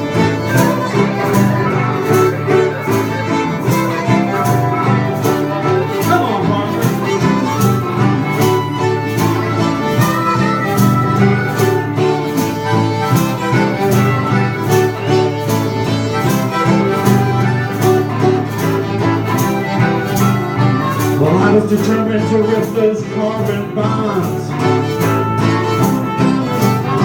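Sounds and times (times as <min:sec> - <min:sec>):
steady beat: 0:00.0 - 0:19.8
fiddle: 0:00.0 - 0:27.0
guitar: 0:00.0 - 0:27.0.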